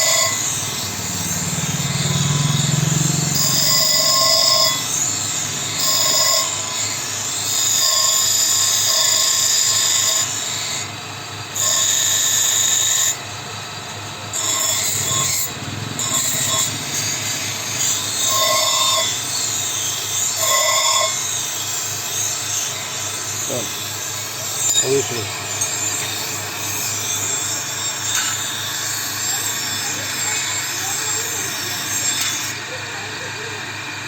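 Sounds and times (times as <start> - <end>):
high squeal: 0.0 - 8.9
power tool running under load: 0.0 - 34.0.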